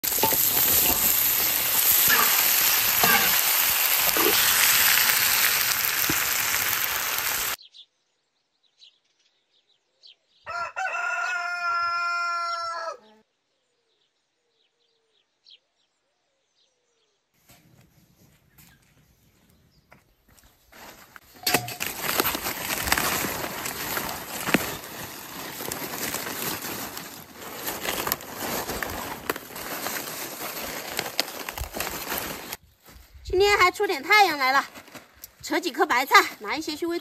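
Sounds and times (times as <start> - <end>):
chillies sizzling in a wok: 0.0 - 7.6, 21.4 - 31.8
rooster crowing: 10.5 - 13.2.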